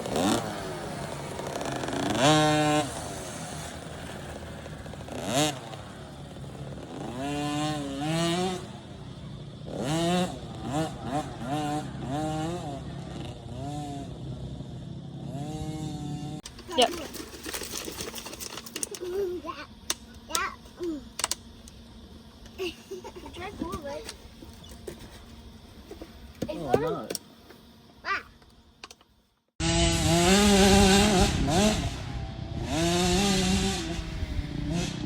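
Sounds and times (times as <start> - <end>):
two-stroke dirt bike engines revving: 0.0 - 21.4, 29.6 - 35.0.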